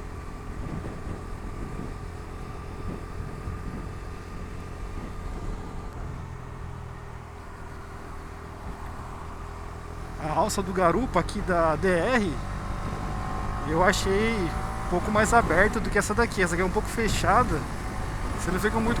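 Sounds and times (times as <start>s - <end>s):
motorcycle engine cruising: 0.0s - 19.0s
wind noise: 0.2s - 6.6s.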